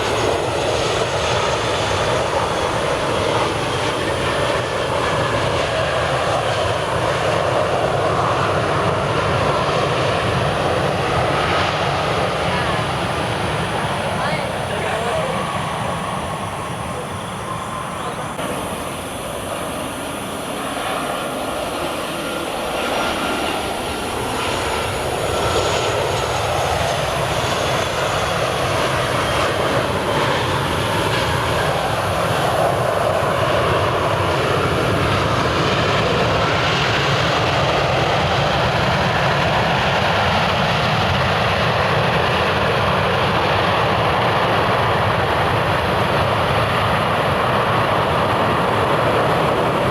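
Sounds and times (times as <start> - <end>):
faint high whine: 0.0 - 26.2
jet engines roaring: 0.0 - 49.9.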